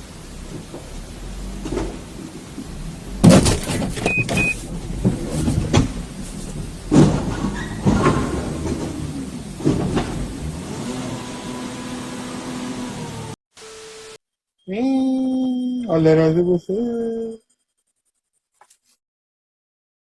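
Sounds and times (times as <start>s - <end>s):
road vehicle running: 0.0s - 13.4s
loud clattering knocks and bangs: 0.5s - 10.7s
short high beeps: 4.0s - 4.6s, 13.6s - 17.5s.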